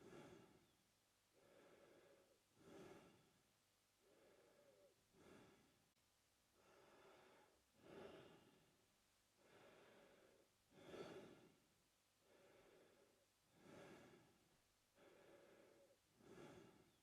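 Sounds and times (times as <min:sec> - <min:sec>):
man breathing through mouth: 0:00.0 - 0:00.8, 0:01.4 - 0:03.3, 0:04.0 - 0:05.7, 0:06.6 - 0:08.6, 0:09.4 - 0:11.6, 0:12.2 - 0:14.3, 0:15.0 - 0:17.0.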